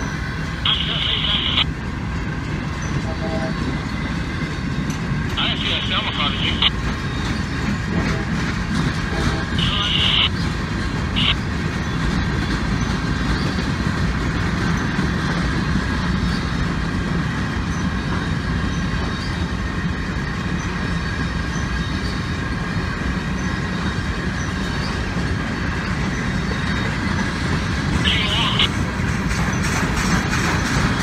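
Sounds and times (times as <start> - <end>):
train wheels on rails: 0.0 - 31.0.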